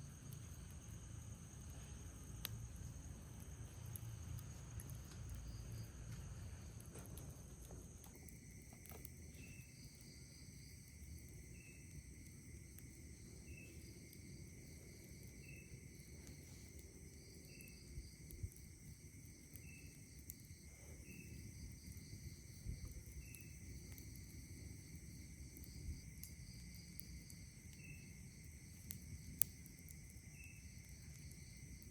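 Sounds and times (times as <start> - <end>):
crickets trilling: 0.0 - 31.9
short insect chirp: 7.9 - 31.9.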